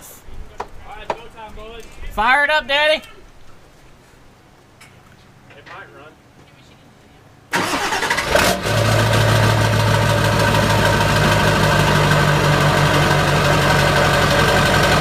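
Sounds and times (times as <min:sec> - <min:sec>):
diesel engine idling: 0:07.5 - 0:15.0.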